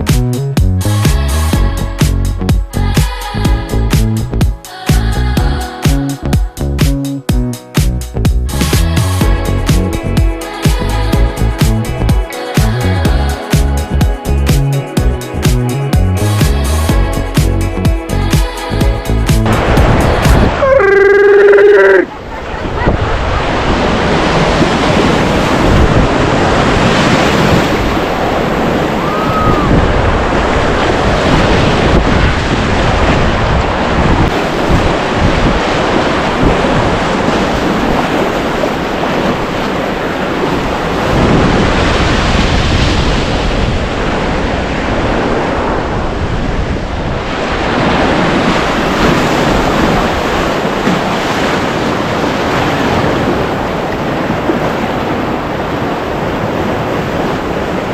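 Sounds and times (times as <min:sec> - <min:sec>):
whitewater roaring: 0:18.2 - 0:57.9.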